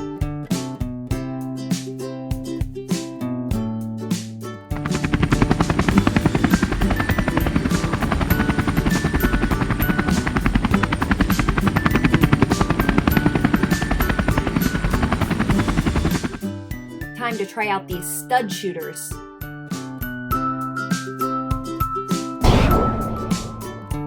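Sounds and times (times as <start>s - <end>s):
light background music: 0.0s - 24.0s
helicopter rotor chopping: 4.8s - 16.5s, 22.4s - 23.9s.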